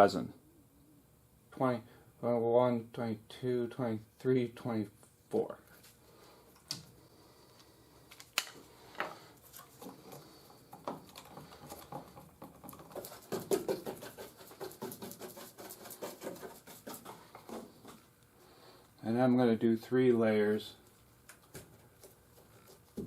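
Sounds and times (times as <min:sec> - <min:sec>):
stick stirring resin in a cup: 0:09.3 - 0:18.1.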